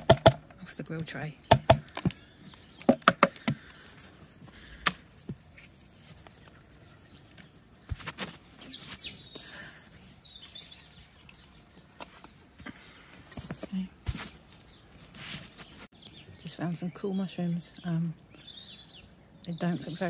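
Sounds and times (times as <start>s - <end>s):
bird singing whistled notes: 8.1s - 11.5s.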